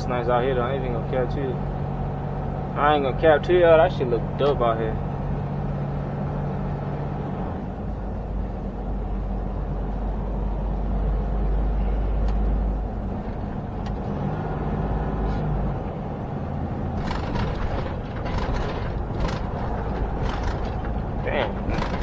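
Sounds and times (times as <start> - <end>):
truck diesel engine droning: 0.0 - 22.0
engine brake: 17.0 - 22.0.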